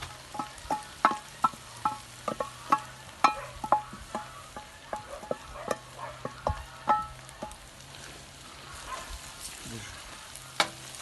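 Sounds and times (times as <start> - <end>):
food sizzling in oil: 0.0 - 11.0
metal utensil knocking on pot: 0.3 - 7.6.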